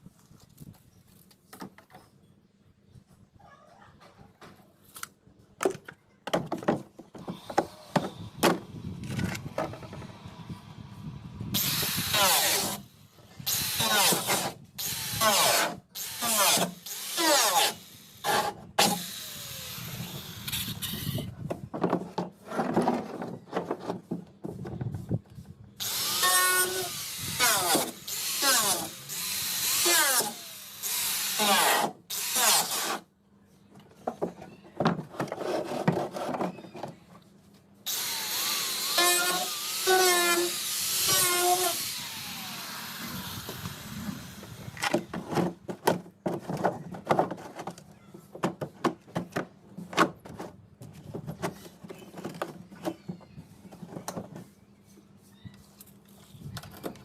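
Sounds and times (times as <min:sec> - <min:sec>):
handheld power tool bursts: 0:11.6 - 0:12.8, 0:13.5 - 0:21.2, 0:25.8 - 0:33.0, 0:37.9 - 0:45.0.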